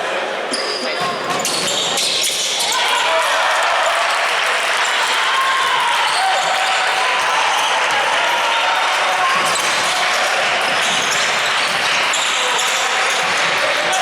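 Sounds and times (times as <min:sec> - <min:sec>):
crowd of voices: 0:00.0 - 0:14.0
basketball bouncing on court: 0:01.0 - 0:02.4, 0:05.9 - 0:14.0.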